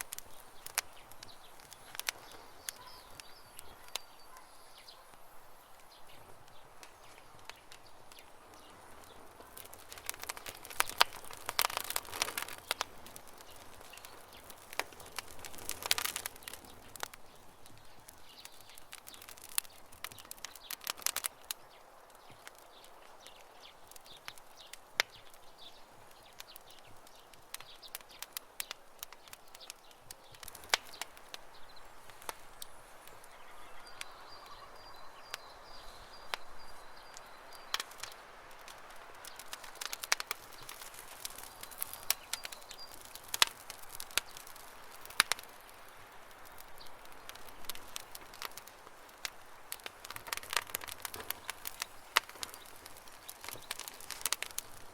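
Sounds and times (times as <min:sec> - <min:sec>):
campfire crackling and popping: 0:00.0 - 0:54.9.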